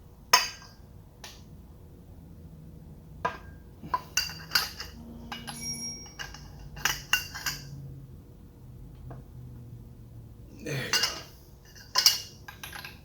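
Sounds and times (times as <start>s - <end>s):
metal tools clinking: 4.2s - 7.7s, 10.9s - 13.0s
metallic ringing: 4.2s - 7.8s.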